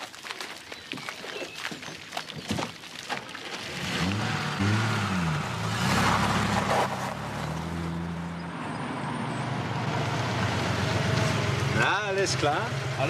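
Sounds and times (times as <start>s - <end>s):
car engine droning: 3.6s - 13.0s.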